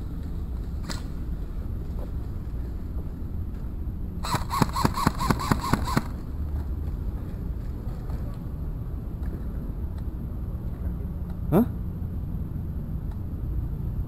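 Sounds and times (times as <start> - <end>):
airsoft rifle shots: 4.2 - 6.2.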